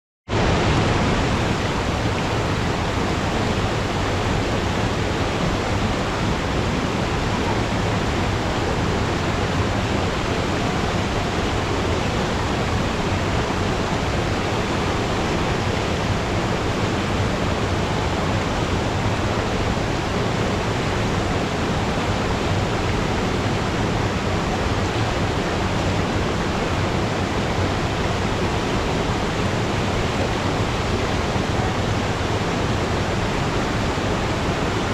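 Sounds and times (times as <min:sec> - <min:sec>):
waterfall rushing: 0:00.3 - 0:34.9.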